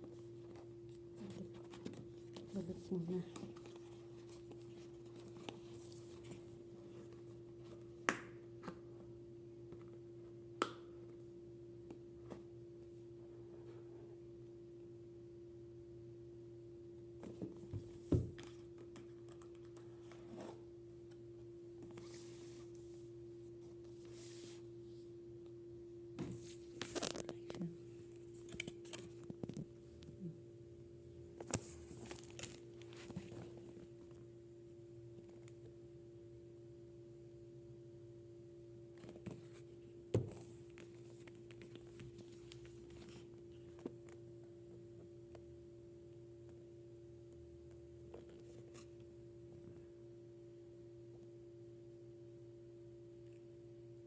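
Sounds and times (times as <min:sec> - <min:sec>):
low electrical hum: 0:00.0 - 0:54.0
packaging rustling: 0:31.5 - 0:33.5.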